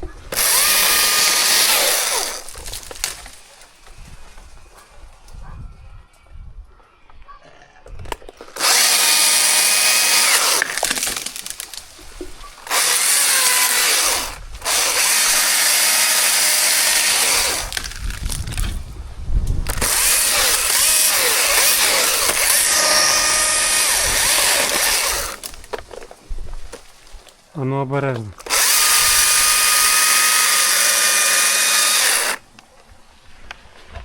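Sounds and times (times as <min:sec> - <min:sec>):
chainsaw cutting wood: 0:00.0 - 0:03.4, 0:08.3 - 0:11.9, 0:12.6 - 0:18.8, 0:19.6 - 0:25.6, 0:28.4 - 0:32.5.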